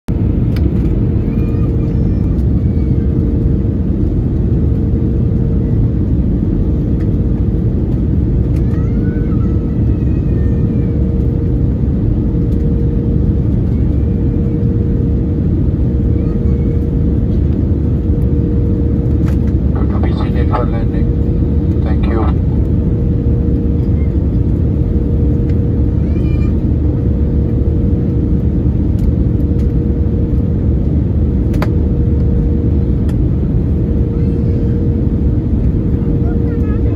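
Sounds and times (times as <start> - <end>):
aircraft engines and airflow rumble: 0.1 - 36.9
constant low hum: 0.1 - 36.9.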